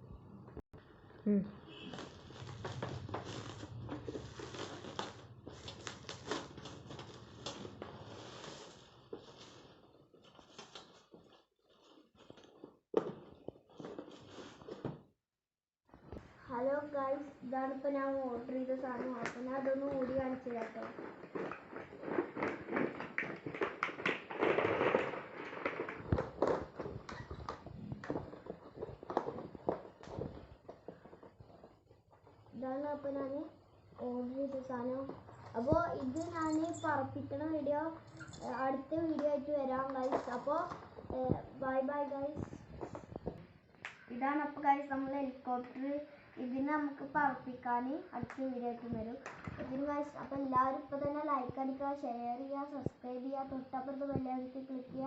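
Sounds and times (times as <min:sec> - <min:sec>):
packaging rustling and crinkling: 0:01.9 - 0:14.9, 0:18.9 - 0:32.4.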